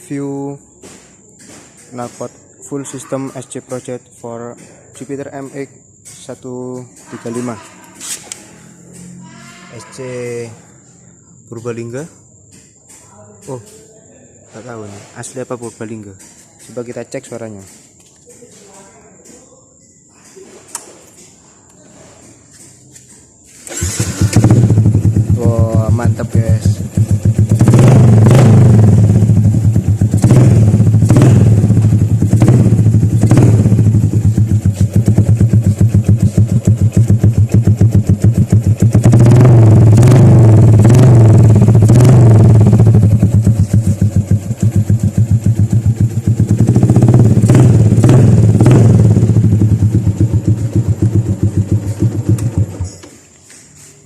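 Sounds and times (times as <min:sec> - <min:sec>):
motorcycle engine revving: 0:23.6 - 0:53.0.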